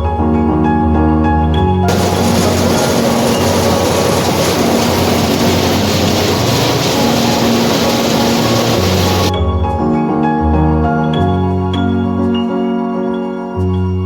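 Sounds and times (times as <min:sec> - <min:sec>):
low hum: 0:01.9 - 0:09.3
threshing machine running: 0:01.9 - 0:09.3.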